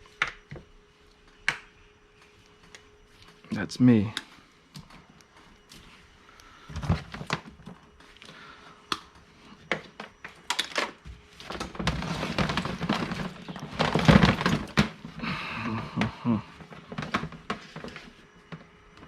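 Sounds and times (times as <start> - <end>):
rummaging and clattering through junk: 6.7 - 8.0, 9.7 - 18.7
objects knocking and thunking: 9.7 - 18.7.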